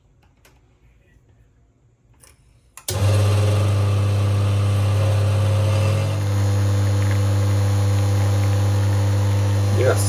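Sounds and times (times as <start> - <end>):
espresso machine pump humming: 2.9 - 10.0.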